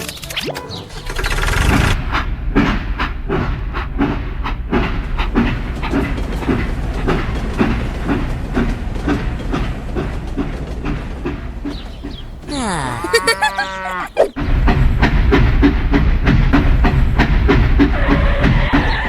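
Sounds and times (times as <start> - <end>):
train wheels clattering on rails: 2.0 - 12.2, 14.9 - 19.0
low train rumble: 2.3 - 12.5.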